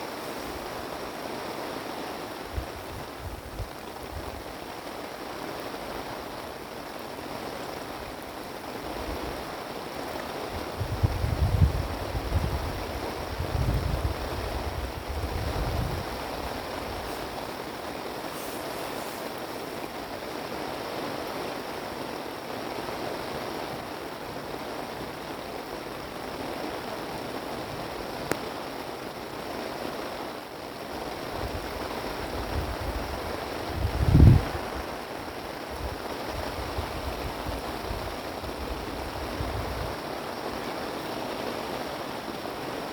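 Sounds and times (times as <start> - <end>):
strong wind blowing: 0.0 - 4.6, 10.4 - 20.7, 31.3 - 40.1
wind buffeting microphone: 2.4 - 4.6, 10.4 - 20.6, 31.2 - 40.1.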